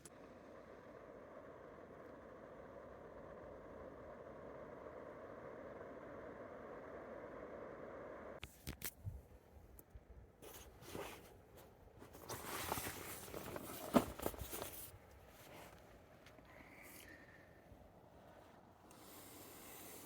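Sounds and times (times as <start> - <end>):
rustling camping gear: 10.4 - 17.1.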